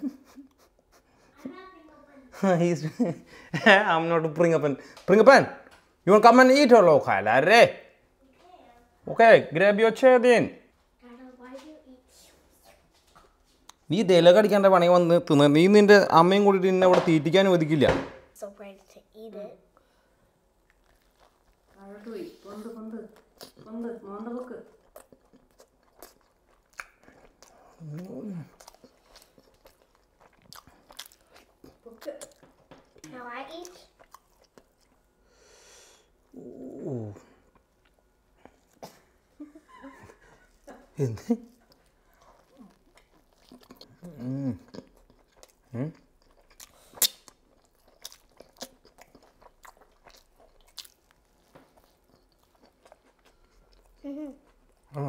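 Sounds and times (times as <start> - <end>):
person chewing with mouth clicks: 20.6 - 21.8, 23.1 - 23.7, 24.7 - 35.1, 41.5 - 55.0
person humming: 36.4 - 37.3, 44.0 - 44.7.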